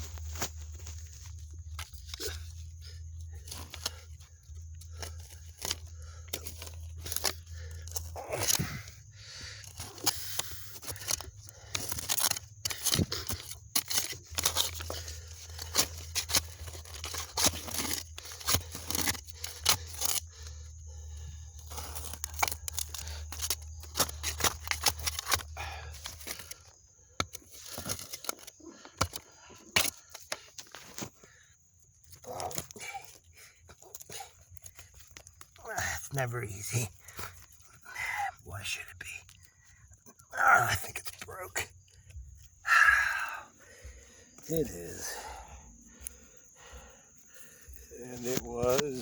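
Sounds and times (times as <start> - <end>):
tool scraping through dirt: 0.0 - 31.4, 47.7 - 49.0.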